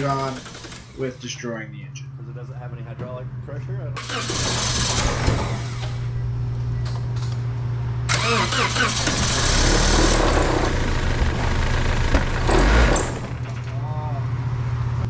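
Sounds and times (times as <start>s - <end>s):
engine cranking on starter: 0.0s - 1.2s, 4.0s - 6.1s, 8.1s - 13.8s
heavy low engine thumps: 9.1s - 13.8s.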